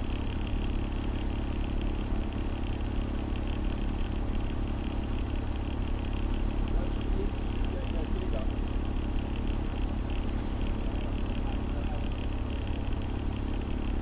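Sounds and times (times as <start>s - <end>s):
diesel engine drone: 5.1s - 14.0s.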